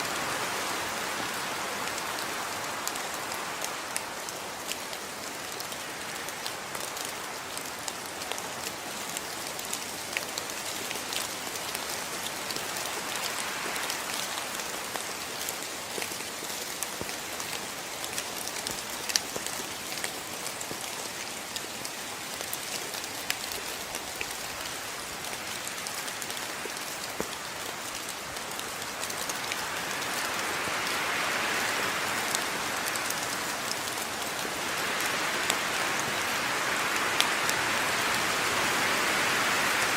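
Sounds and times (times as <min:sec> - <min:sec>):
steady rain falling: 0:00.0 - 0:39.9
raindrops landing in sharp ticks: 0:01.9 - 0:31.0.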